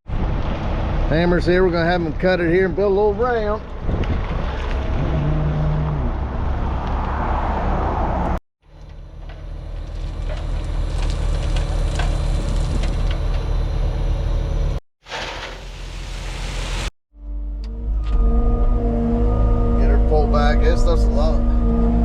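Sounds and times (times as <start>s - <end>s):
diesel engine running: 8.7s - 14.8s.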